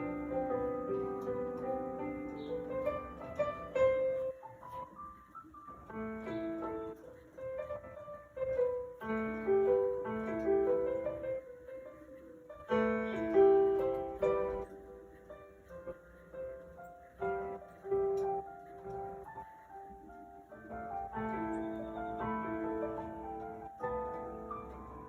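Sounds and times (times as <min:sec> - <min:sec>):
gentle piano music: 0:00.0 - 0:25.0.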